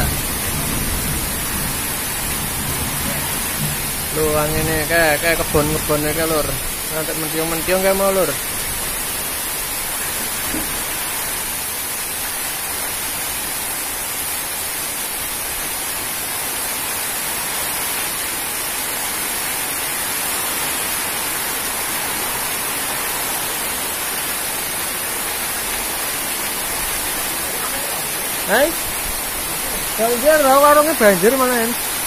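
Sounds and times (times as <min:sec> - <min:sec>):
strong wind: 0:00.0 - 0:07.0
heavy rain pouring: 0:00.0 - 0:32.0.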